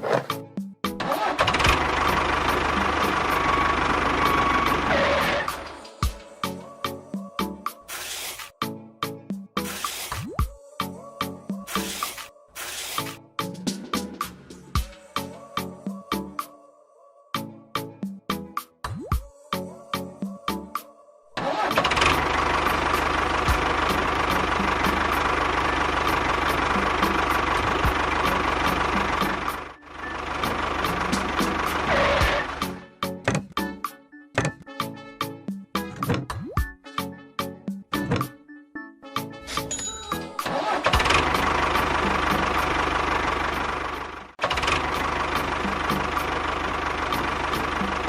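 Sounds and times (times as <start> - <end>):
engine running: 1.0 - 6.0, 21.4 - 32.8, 40.4 - 48.0.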